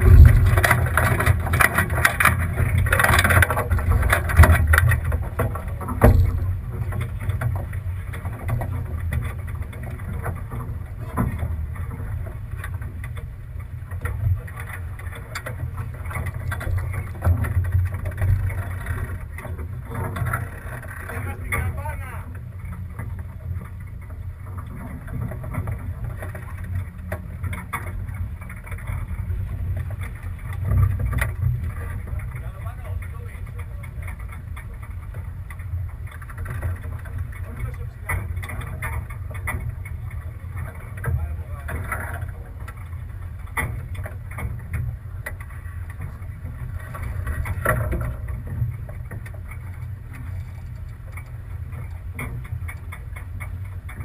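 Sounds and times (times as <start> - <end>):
water splashes: 0.0 - 7.2
wind on microphone: 0.0 - 7.3
sharp clicks and knocks: 0.0 - 54.0
water wash and hull noise: 0.0 - 54.0
wind rumble on microphone: 0.0 - 54.0.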